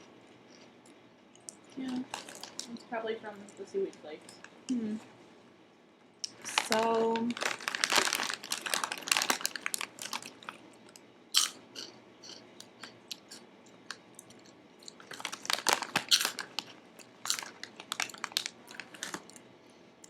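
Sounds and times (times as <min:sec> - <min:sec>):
crunchy chips being chewed: 0:00.3 - 0:02.8, 0:06.2 - 0:19.5.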